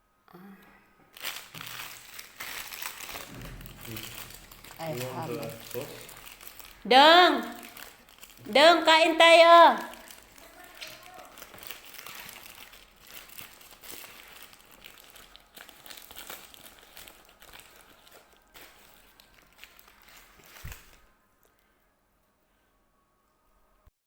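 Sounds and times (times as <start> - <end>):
food packaging crinkling: 1.1 - 21.1
loud thump: 3.2 - 5.0.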